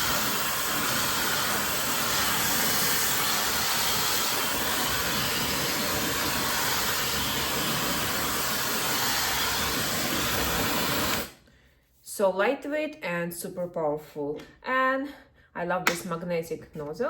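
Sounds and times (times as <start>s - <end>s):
hair dryer blowing air: 0.0s - 11.4s.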